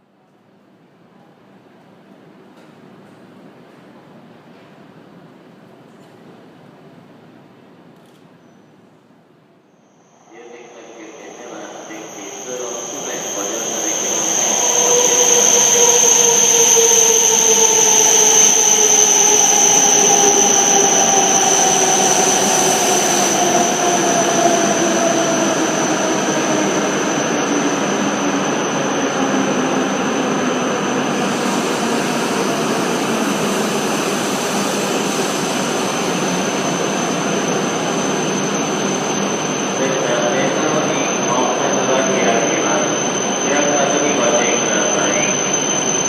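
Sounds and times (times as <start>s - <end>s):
train wheel and running noise: 1.4s - 8.3s, 10.4s - 46.0s
steady high whistle: 9.8s - 46.0s
train motor whine: 10.1s - 29.2s.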